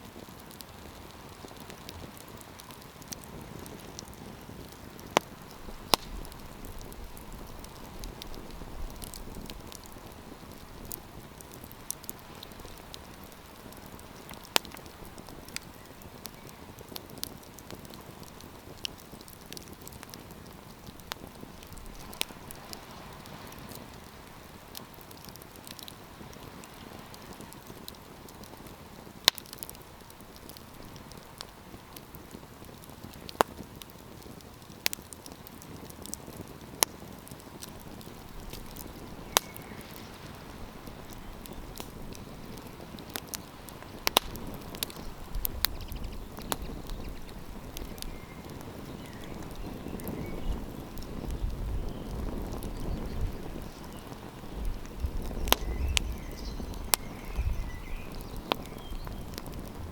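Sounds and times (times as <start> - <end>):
campfire crackling and popping: 0.0 - 59.9
low rumble: 59.6 - 59.9.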